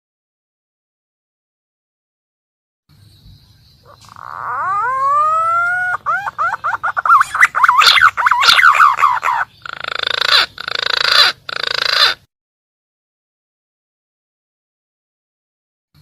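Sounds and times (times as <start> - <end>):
harsh grating croaks: 3.8 - 12.3
pigeon call whistles: 3.9 - 9.5.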